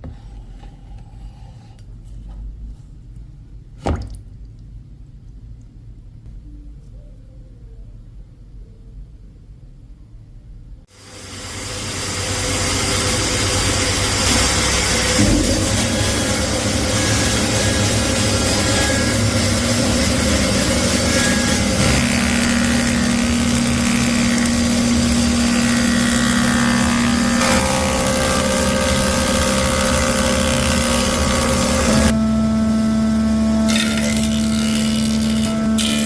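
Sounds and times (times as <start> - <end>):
power tool motor running: 11.0 - 36.0.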